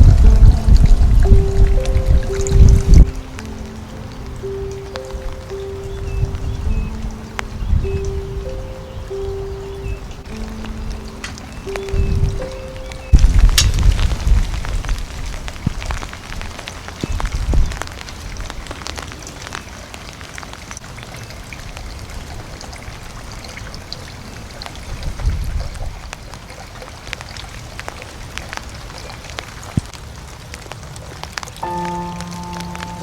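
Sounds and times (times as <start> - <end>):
wind gusting: 0.0 - 18.6
wind buffeting microphone: 0.0 - 18.8, 24.8 - 26.2.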